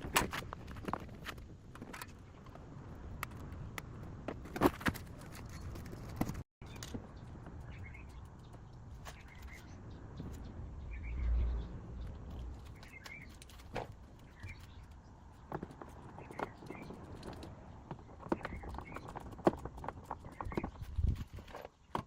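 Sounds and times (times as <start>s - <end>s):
small birds chirping: 6.6s - 22.0s.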